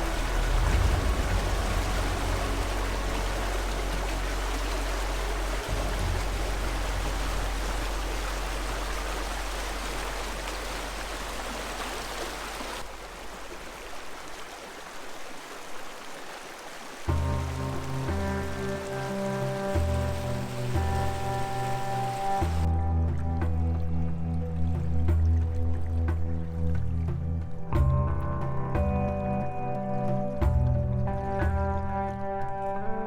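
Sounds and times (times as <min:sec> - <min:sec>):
low rumble: 0:00.0 - 0:11.8
floodwater rushing: 0:00.0 - 0:22.7.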